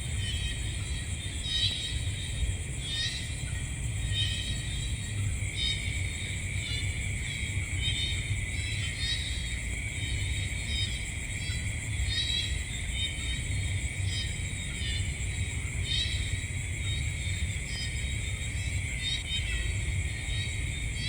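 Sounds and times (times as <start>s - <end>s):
crickets trilling: 0.0s - 21.0s
insects chirping: 0.0s - 21.0s.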